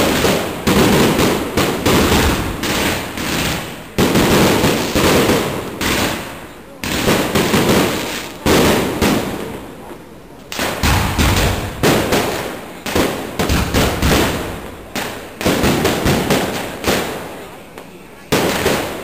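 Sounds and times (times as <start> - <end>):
fireworks bursting with echo: 0.0 - 19.0.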